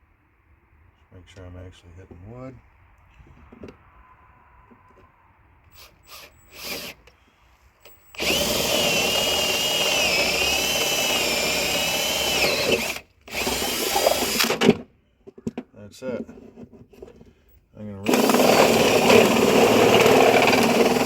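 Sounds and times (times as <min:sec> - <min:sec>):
electric drill boring into wood: 0:05.7 - 0:07.1, 0:07.8 - 0:14.8, 0:18.0 - 0:21.0.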